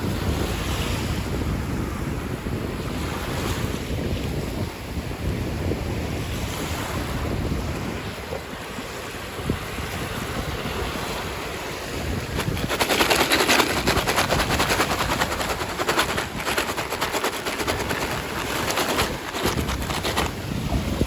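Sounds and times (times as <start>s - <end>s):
plastic packaging crinkling: 12.3s - 20.5s.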